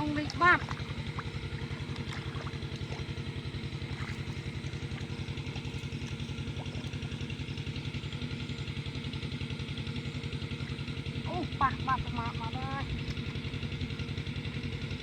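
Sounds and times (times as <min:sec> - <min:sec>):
small engine chugging: 0:00.0 - 0:15.0.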